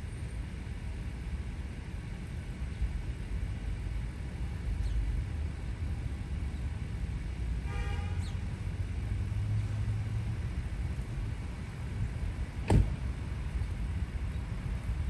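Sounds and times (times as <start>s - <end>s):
low outdoor rumble: 0.0s - 15.0s
sharp knock: 12.7s - 13.0s.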